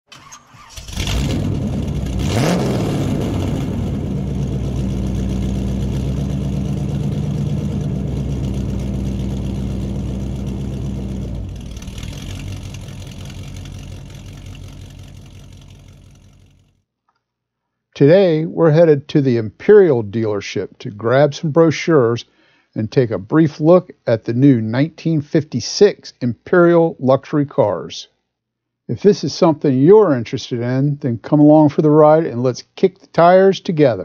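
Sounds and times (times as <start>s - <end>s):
car engine starting and revving: 0.1s - 16.7s.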